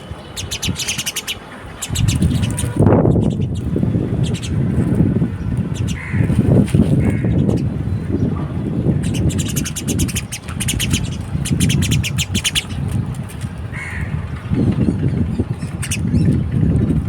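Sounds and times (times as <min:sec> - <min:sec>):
small birds chirping: 0:00.0 - 0:04.6, 0:05.4 - 0:06.3, 0:07.0 - 0:08.3, 0:09.0 - 0:12.9, 0:14.6 - 0:16.4
steady low rumble: 0:00.0 - 0:17.0.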